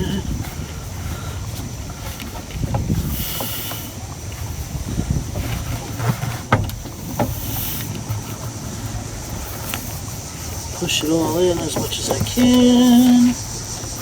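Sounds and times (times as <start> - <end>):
cable rustling and scraping: 4.2 - 14.0
sharp clicks and knocks: 6.0 - 8.5.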